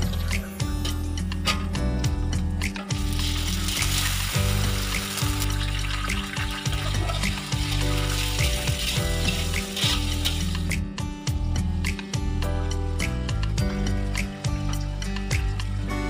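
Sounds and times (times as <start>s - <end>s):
background music: 0.0s - 16.0s
chicken sizzling in hot oil: 2.8s - 10.8s
metal spatula stirring in wok: 7.8s - 10.6s.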